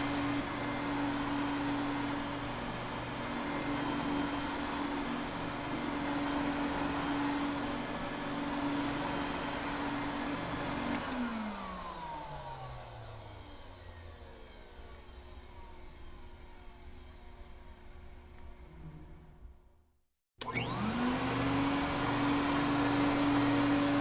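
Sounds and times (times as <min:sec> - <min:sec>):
vacuum cleaner motor running: 0:00.0 - 0:19.2, 0:20.4 - 0:24.0
vacuum cleaner switch click: 0:10.8 - 0:11.3, 0:20.4 - 0:20.8.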